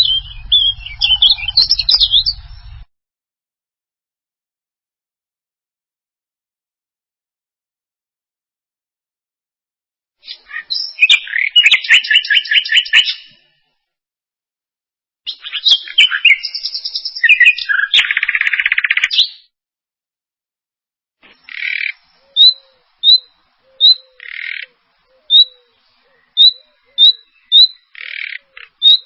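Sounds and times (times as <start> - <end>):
songbird singing trills: 0.0 - 2.8, 10.2 - 13.4, 15.3 - 19.5, 21.2 - 29.0
bird chirping: 0.0 - 2.9, 10.2 - 13.5, 15.3 - 19.5, 21.2 - 29.0.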